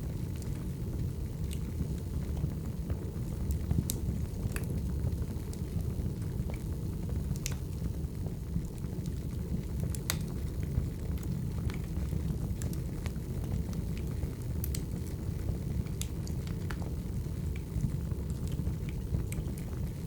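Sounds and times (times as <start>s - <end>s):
fire rumbling: 0.0s - 20.0s
firewood crackling and popping: 0.0s - 20.0s.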